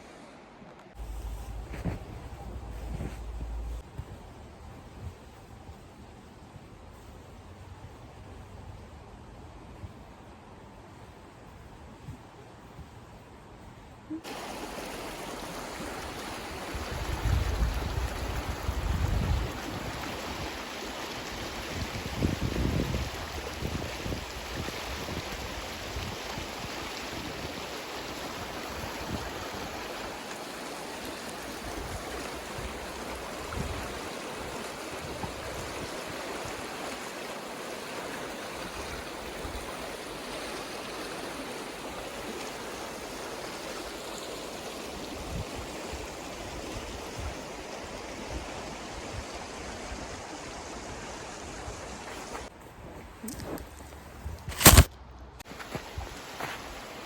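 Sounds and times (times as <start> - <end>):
river water rushing: 14.2 - 21.9, 25.3 - 52.4.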